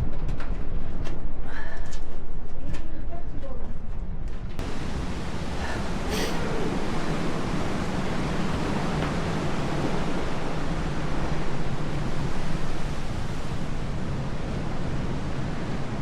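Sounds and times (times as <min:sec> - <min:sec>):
rushing wind: 0:03.7 - 0:16.0.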